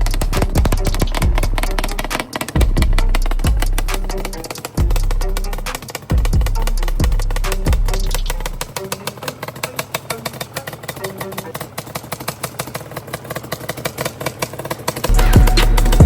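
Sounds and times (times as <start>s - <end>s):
music with heavy beat: 0.0s - 8.8s, 15.1s - 16.0s
two-stroke engine idling: 0.0s - 16.0s.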